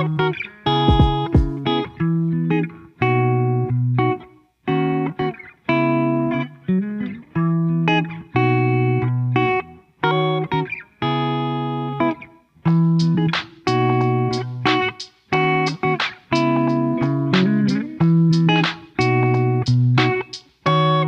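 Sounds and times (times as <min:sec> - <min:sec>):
electric guitar chords: 0:00.0 - 0:21.0.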